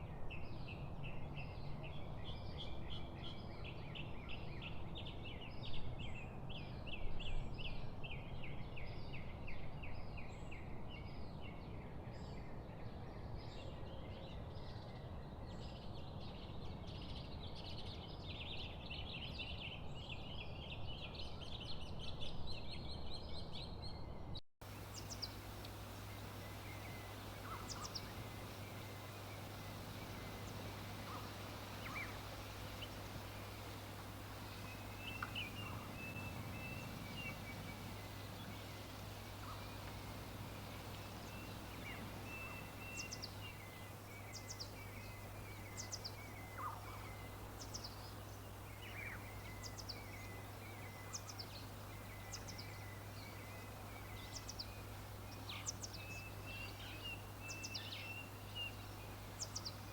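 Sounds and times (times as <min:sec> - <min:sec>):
birds chirping chorus: 0:24.6 - 0:59.9
steady hiss: 0:24.6 - 0:59.9
low hum: 0:24.7 - 0:45.3
single bird calls: 0:24.9 - 0:44.7.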